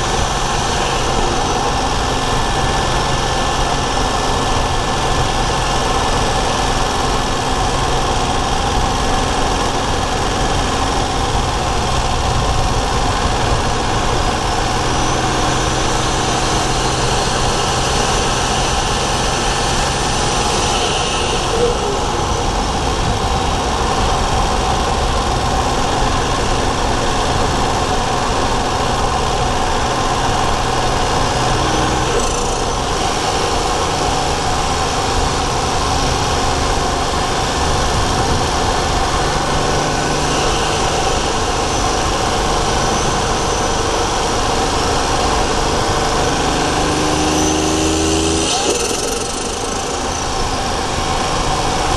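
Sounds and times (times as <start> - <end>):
car engine running: 0.0 - 51.9
faint high whine: 30.9 - 50.8.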